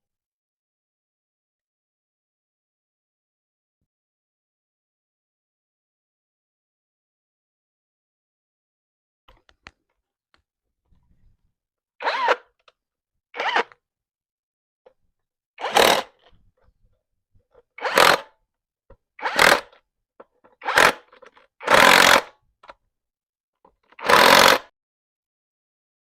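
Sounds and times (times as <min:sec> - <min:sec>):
handheld power tool bursts: 0:12.0 - 0:12.4, 0:13.4 - 0:13.7, 0:15.6 - 0:16.2, 0:17.8 - 0:18.3, 0:19.2 - 0:19.8, 0:20.6 - 0:22.3, 0:24.0 - 0:24.7.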